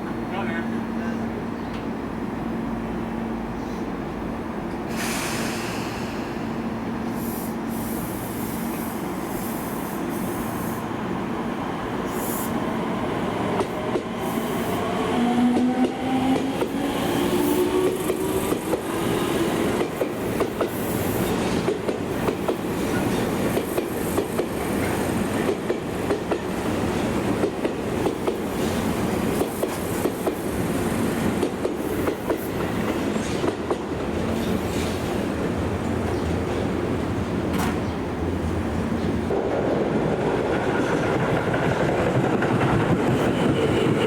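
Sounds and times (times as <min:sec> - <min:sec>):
train wheels clicking over joints: 0:13.5 - 0:35.2, 0:39.3 - 0:44.0.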